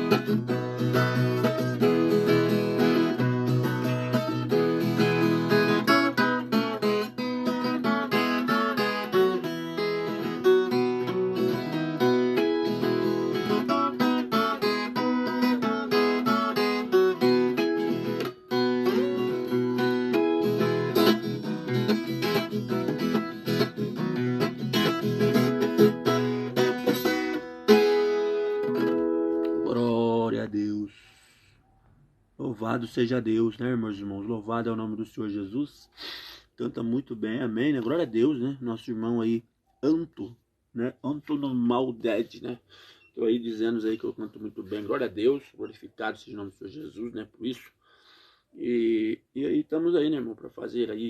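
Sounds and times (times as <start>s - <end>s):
plucked guitar melody over strummed chords: 0.0s - 29.7s.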